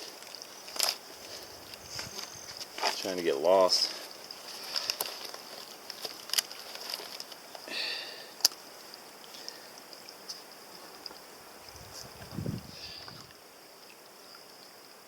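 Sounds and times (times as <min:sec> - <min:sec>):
insect drone: 0:00.0 - 0:15.0
footsteps on rocky ground: 0:00.8 - 0:07.3.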